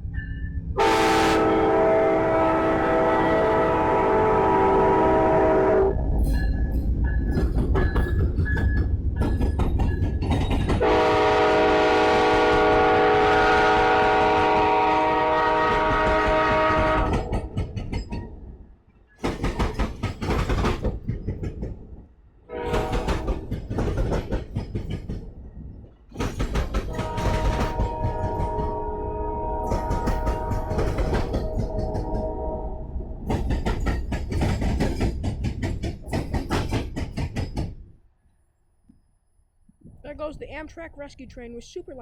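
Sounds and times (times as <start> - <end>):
train air horn: 0.8 - 6.0, 10.8 - 17.6, 22.5 - 23.3, 26.9 - 33.0
wheels clacking over rail joints: 6.2 - 11.0, 15.6 - 28.8, 29.6 - 32.5, 33.2 - 37.9.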